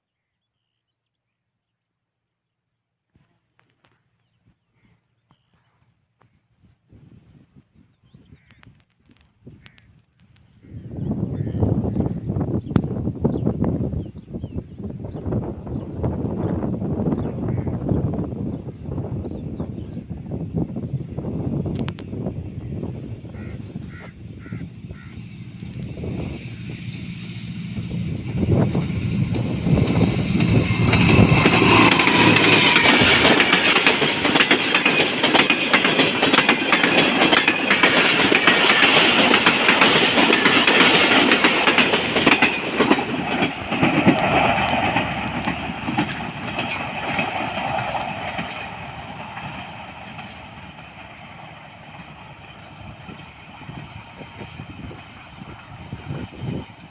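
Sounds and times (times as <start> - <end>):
train wheels clattering over rails: 24.9 - 56.9.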